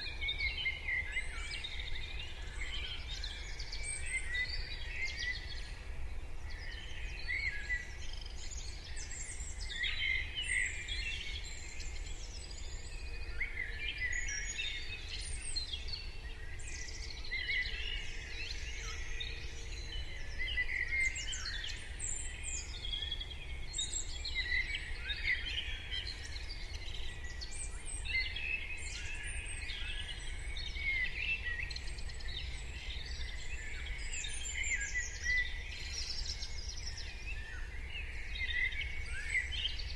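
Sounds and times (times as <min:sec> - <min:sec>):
birds singing and calling: 0:00.0 - 0:39.9.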